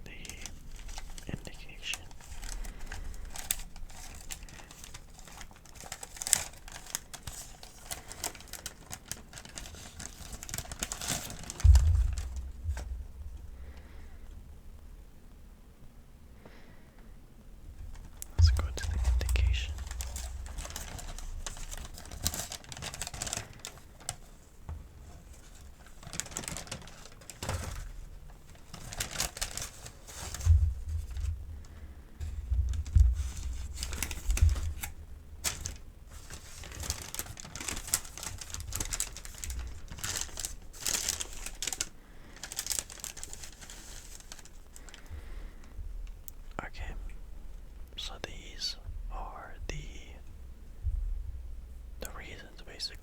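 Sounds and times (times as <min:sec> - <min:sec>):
paper crinkling and rustling: 0:00.0 - 0:14.0, 0:17.8 - 0:46.2
soft knocks: 0:11.6 - 0:13.9.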